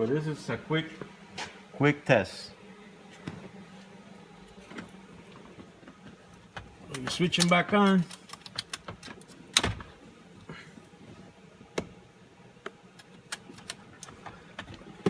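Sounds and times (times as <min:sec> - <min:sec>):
plastic relays clicking and knocking: 0:06.9 - 0:09.8.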